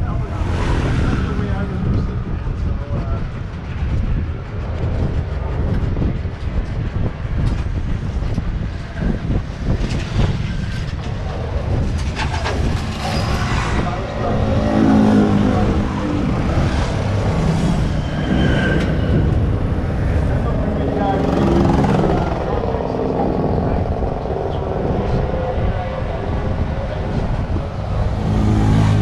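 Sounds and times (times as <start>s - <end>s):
tram rumbling along: 0.0s - 29.0s.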